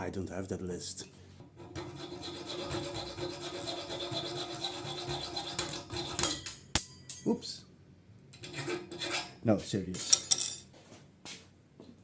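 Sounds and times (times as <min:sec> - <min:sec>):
hacksaw sawing through metal: 0:01.6 - 0:06.5, 0:08.4 - 0:09.4.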